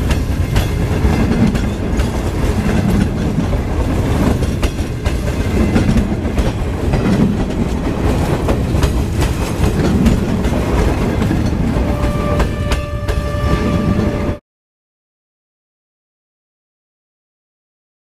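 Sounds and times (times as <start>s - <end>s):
train wheels clattering over rails: 0.0s - 14.2s.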